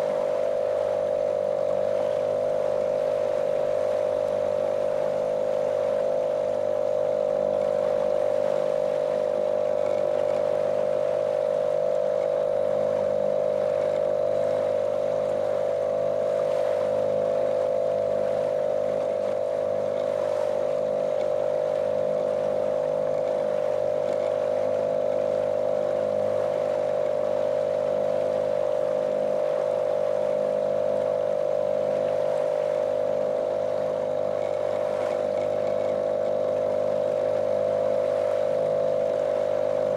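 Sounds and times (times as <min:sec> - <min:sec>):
motorboat engine drone: 0:00.0 - 0:39.9.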